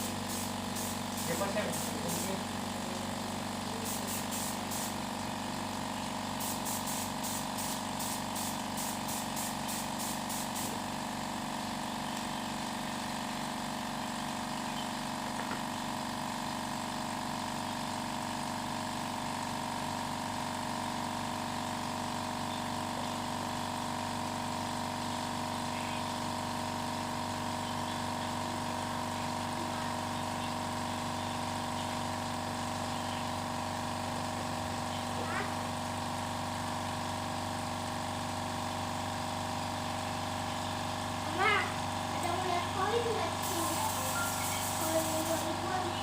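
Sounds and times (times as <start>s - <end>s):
motor humming: 0.0s - 13.2s, 38.9s - 46.0s.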